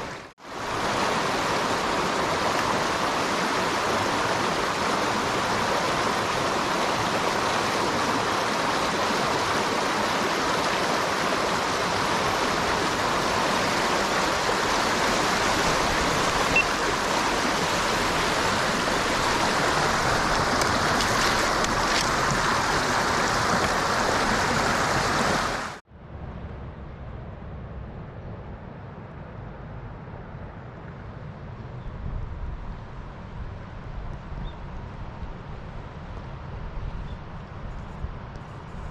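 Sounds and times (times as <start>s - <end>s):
stream water rushing: 0.0s - 25.8s.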